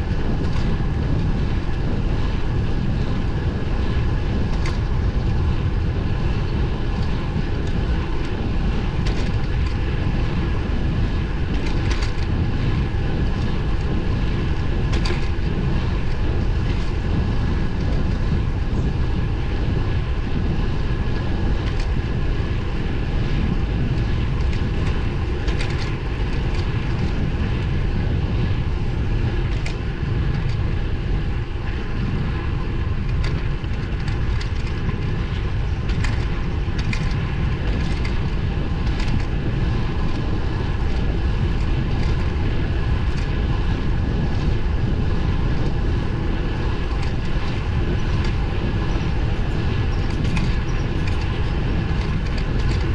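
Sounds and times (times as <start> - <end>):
road and tyre noise: 0.0 - 52.9
wind buffeting microphone: 0.0 - 52.9.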